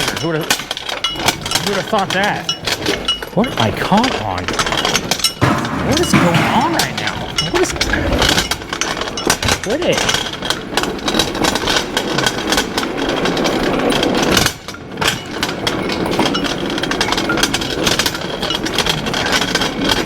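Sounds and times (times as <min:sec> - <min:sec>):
engine hoist rattling on floor: 0:00.0 - 0:20.0.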